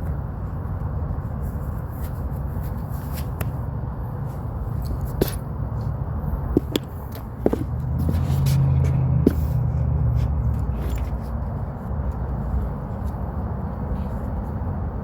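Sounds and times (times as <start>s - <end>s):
steady low rumble: 3.4s - 13.8s.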